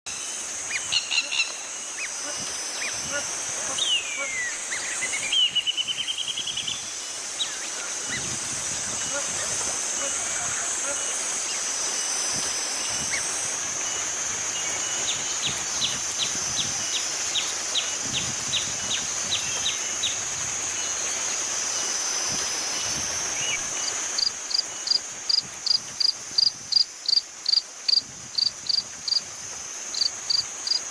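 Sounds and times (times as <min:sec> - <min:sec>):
insects droning: 0:00.1 - 0:30.9
pulsing insect call: 0:00.1 - 0:30.9
quick repeated insect chirps: 0:10.8 - 0:30.9.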